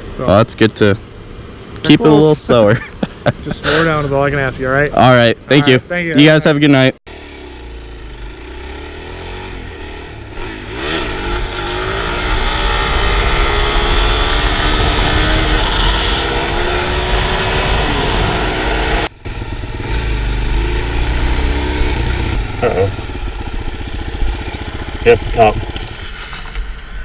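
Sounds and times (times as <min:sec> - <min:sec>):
motorcycle engine revving: 0:07.1 - 0:26.6
low wind rumble: 0:09.4 - 0:27.0.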